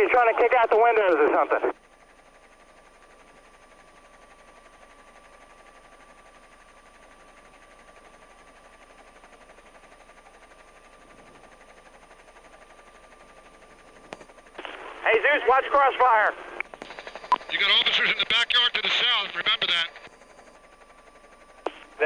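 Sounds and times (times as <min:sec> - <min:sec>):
radio static hiss: 0:00.0 - 0:01.8, 0:14.6 - 0:20.1, 0:21.7 - 0:22.0.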